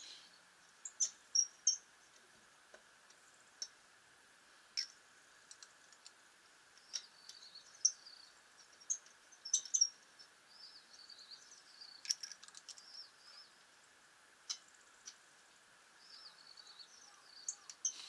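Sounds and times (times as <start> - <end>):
small birds chirping: 0.0 - 1.9, 6.8 - 18.0
faint high-pitched hum: 3.1 - 18.0.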